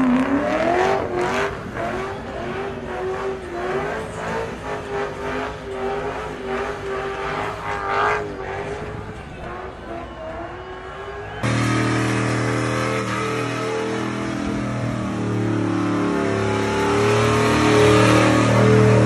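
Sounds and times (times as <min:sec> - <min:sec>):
car engine at high revs: 0:00.0 - 0:19.0
deep truck engine roaring: 0:00.0 - 0:19.0.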